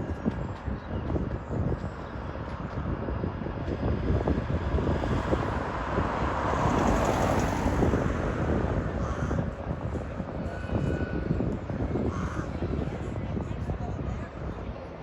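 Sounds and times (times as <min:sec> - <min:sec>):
wind rumbling on microphone: 0:00.0 - 0:15.0
vehicle passing: 0:04.3 - 0:11.4.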